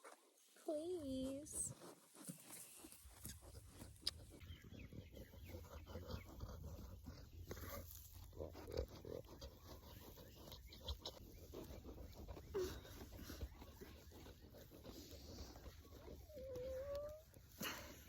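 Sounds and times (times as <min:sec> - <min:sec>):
farm animal grunting: 0:04.5 - 0:18.0.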